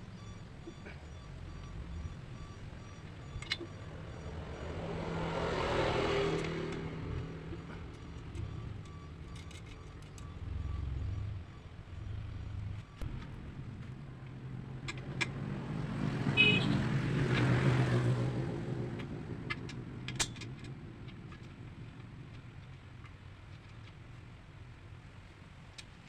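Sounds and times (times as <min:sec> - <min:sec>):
vehicle passing by: 0:00.8 - 0:20.1.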